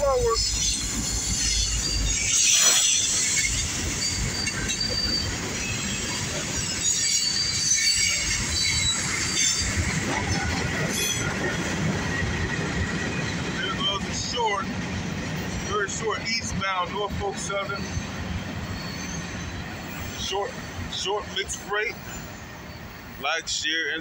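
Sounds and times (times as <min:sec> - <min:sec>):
diesel locomotive rumbling: 0:00.0 - 0:24.0
freight cars rolling on rails: 0:00.0 - 0:24.0
high thin wheel squeal: 0:00.2 - 0:09.9, 0:17.7 - 0:20.4.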